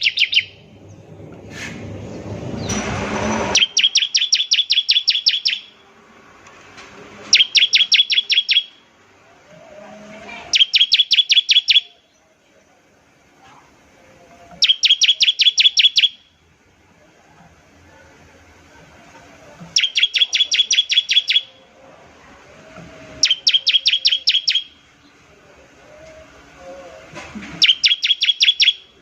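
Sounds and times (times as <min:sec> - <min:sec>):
bird rattling song: 0:00.0 - 0:01.0, 0:02.6 - 0:05.8, 0:07.3 - 0:08.8, 0:10.5 - 0:11.9, 0:14.6 - 0:16.3, 0:19.7 - 0:21.6, 0:23.2 - 0:24.8, 0:27.6 - 0:29.0
rush of noise: 0:00.0 - 0:04.1.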